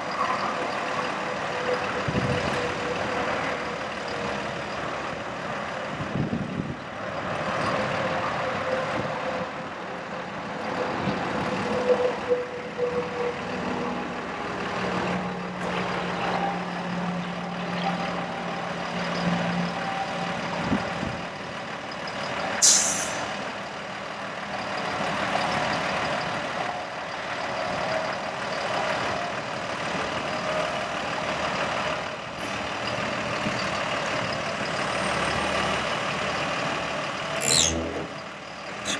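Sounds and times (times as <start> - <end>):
air release hiss: 22.6 - 23.3
truck engine humming: 30.9 - 38.9.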